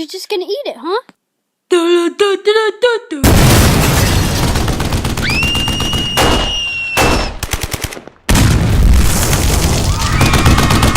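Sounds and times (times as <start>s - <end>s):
rapid automatic gunfire: 4.3s - 6.5s, 7.4s - 8.0s, 9.3s - 10.9s.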